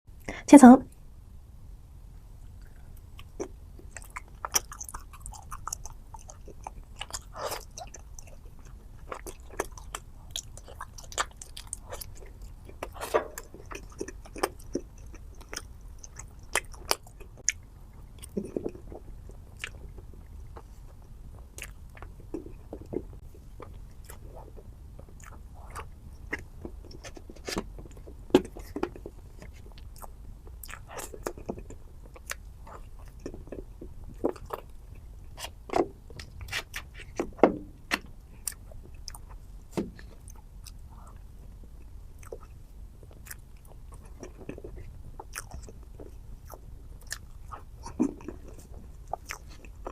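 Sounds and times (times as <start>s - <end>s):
person chewing cake: 2.5s - 49.9s.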